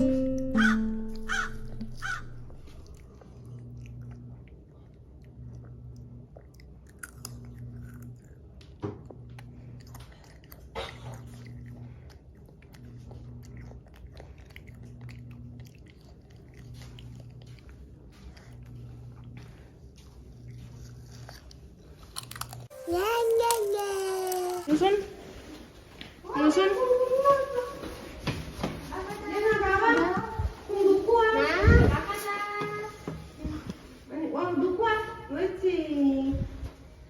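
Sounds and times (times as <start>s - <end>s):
low pulsing hum: 0.0s - 22.7s.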